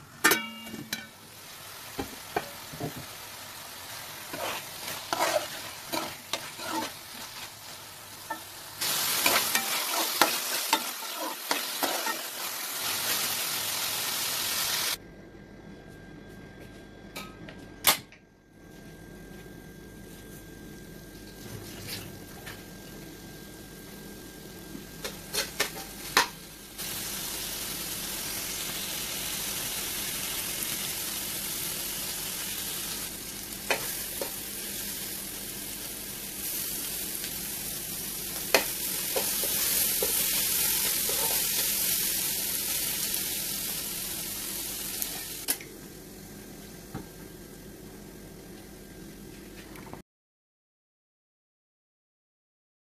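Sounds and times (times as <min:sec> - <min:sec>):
minced meat sizzling in oil: 0:00.2 - 0:15.0, 0:25.0 - 0:46.8.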